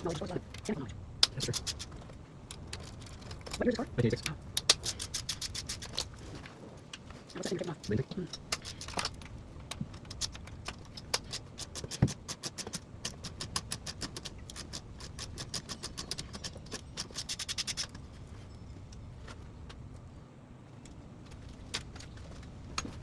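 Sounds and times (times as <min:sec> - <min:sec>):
metallic clicks of hand tools: 0:00.0 - 0:06.2, 0:06.9 - 0:18.0
metal parts rattling: 0:00.0 - 0:19.2
quick run of even clicks: 0:00.1 - 0:06.1, 0:06.9 - 0:18.0.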